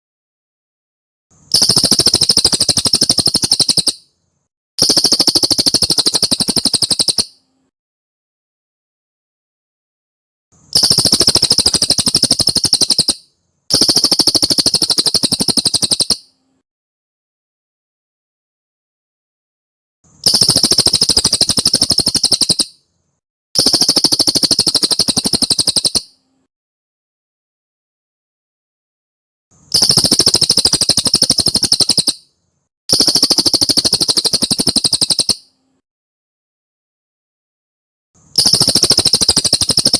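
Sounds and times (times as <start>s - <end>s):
bird trilling: 1.5s - 4.0s, 4.8s - 7.4s, 10.8s - 16.3s, 20.2s - 22.8s, 23.6s - 26.2s, 29.7s - 32.3s, 32.9s - 35.5s, 38.4s - 39.9s.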